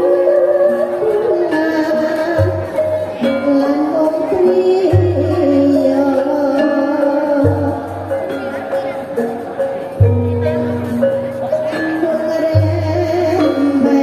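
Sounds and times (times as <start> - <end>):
person singing: 0.0 - 8.4, 11.7 - 14.0
traditional ensemble music: 0.0 - 14.0.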